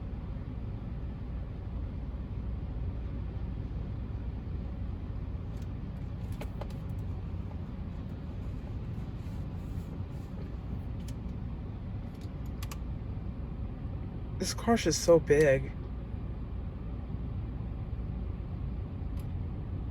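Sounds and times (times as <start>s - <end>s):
car idling rumble: 4.3s - 19.6s.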